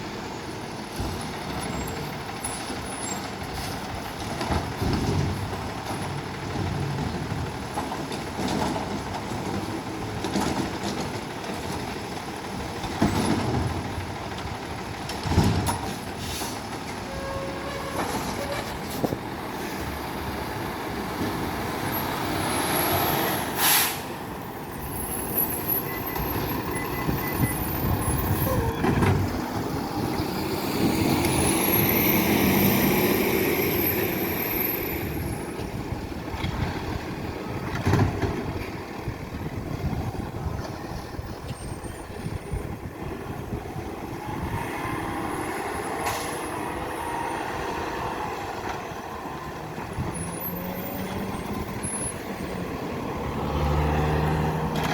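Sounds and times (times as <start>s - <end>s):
diesel engine revving: 18.7s - 41.2s, 42.1s - 54.9s
short sharp hisses or bangs: 23.6s - 24.1s.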